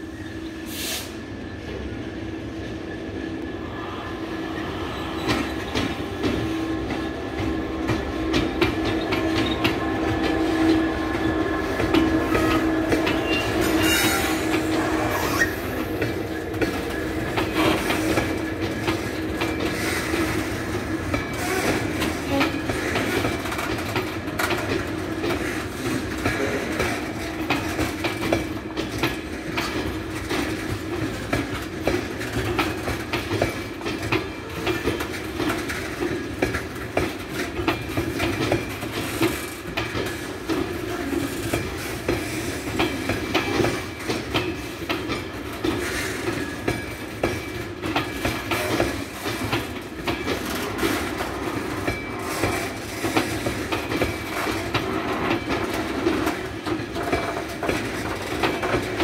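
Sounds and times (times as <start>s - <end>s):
diesel locomotive engine passing: 0.0s - 46.8s
wagon wheels clicking over rail joints: 14.4s - 59.0s.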